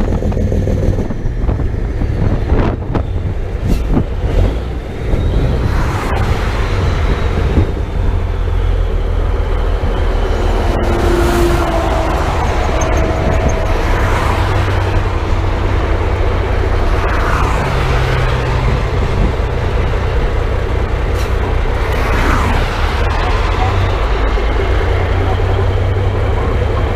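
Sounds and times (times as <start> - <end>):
road noise: 0.0 - 26.9
truck diesel engine drone: 0.0 - 26.9.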